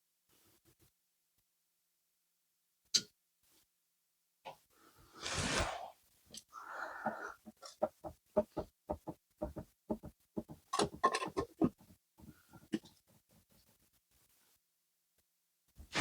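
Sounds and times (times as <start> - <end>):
brief hiss: 5.2 - 6.0.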